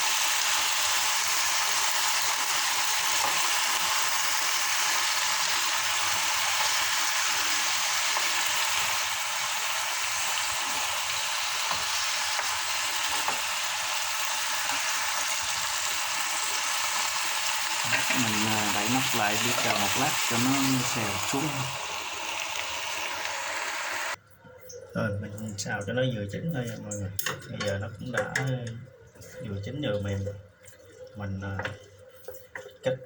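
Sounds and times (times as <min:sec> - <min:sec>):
vegetables sizzling in a pan: 0:00.0 - 0:24.2.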